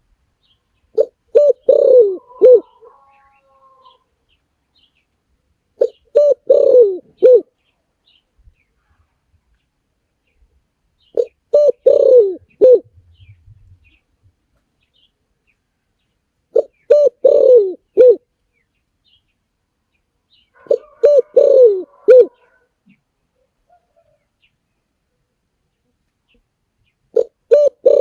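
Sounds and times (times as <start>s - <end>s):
dove cooing: 1.0s - 4.0s, 5.8s - 7.5s, 11.2s - 13.4s, 16.5s - 18.3s, 20.6s - 22.7s, 27.1s - 28.0s.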